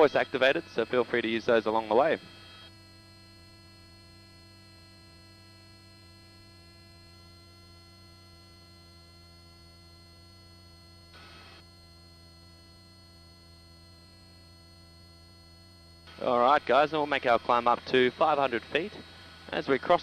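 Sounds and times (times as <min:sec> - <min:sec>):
helicopter hum through headset: 0:00.0 - 0:04.6, 0:12.3 - 0:20.0.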